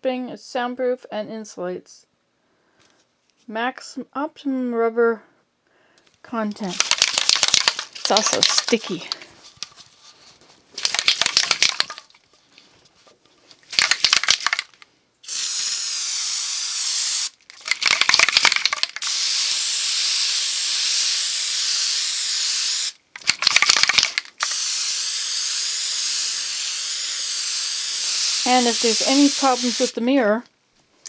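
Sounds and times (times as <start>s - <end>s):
aerosol can rattling when shaken: 6.5s - 12.5s, 13.6s - 30.0s
aerosol spray hissing: 15.3s - 17.4s, 19.0s - 23.0s, 24.4s - 30.0s.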